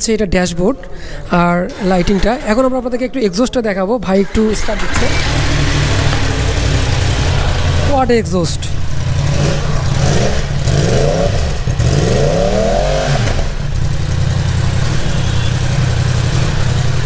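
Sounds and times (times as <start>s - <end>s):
motorcycle engine revving and idling: 4.2s - 17.0s.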